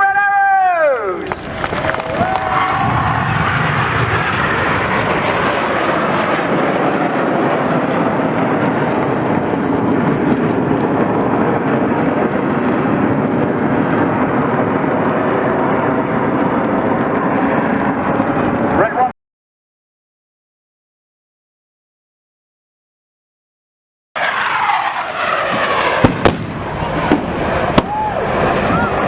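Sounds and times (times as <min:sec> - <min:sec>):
jet engine rush: 0:01.1 - 0:19.1, 0:24.2 - 0:29.0.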